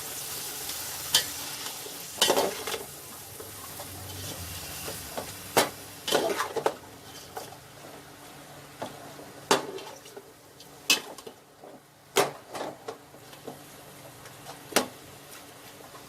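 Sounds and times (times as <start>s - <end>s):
chicken sauteing: 0.0s - 11.3s.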